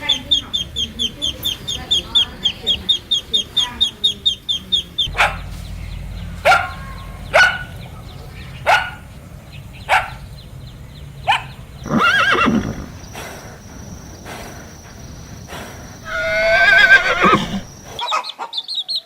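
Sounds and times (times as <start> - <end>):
horse whinny: 11.8 - 18.0
short sharp animal calls: 11.9 - 18.0.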